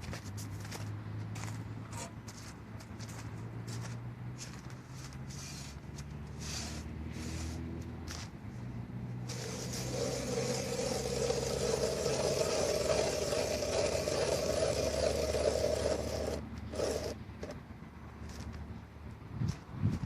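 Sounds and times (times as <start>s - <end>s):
mechanical grinding: 9.3s - 17.6s.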